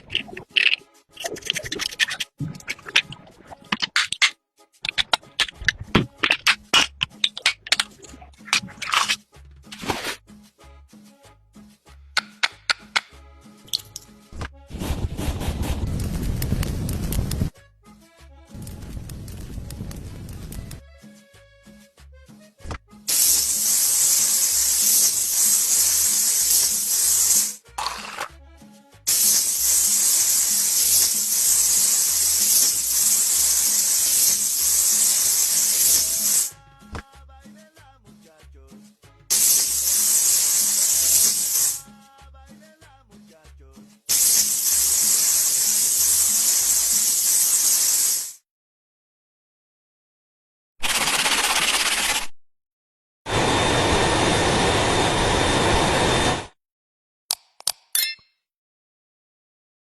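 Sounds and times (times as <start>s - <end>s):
background music with beat: 9.2s - 14.7s, 20.8s - 23.1s, 28.3s - 29.1s, 36.5s - 39.3s, 41.8s - 44.1s
loud spraying hiss: 23.1s - 28.2s, 29.1s - 36.5s, 39.3s - 41.8s, 44.1s - 48.4s.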